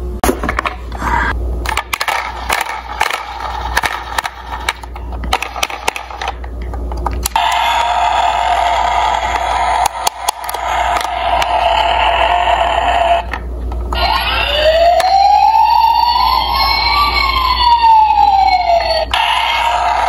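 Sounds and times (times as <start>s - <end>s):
toy cars clattering together: 1.7s - 6.4s
toy car rolling whir: 1.9s - 6.4s.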